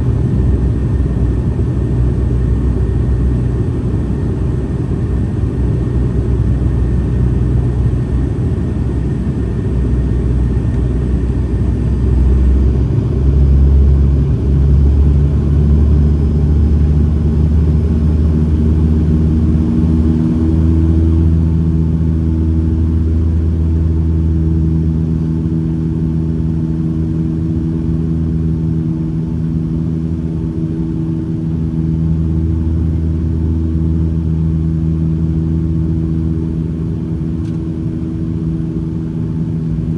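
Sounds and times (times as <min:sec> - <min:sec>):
airliner engines droning in cabin: 0:00.0 - 0:39.9
steady humming tones: 0:18.8 - 0:39.9.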